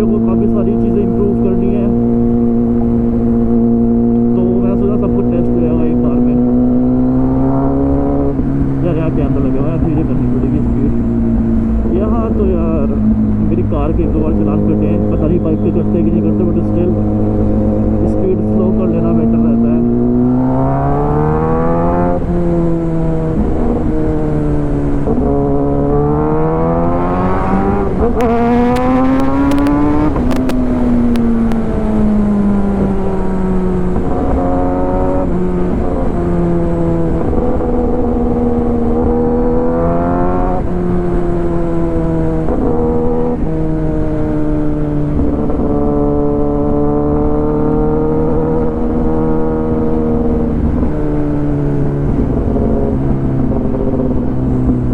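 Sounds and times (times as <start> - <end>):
motorcycle engine revving and shifting: 0.0 - 54.9
sharp clicks: 28.1 - 31.6.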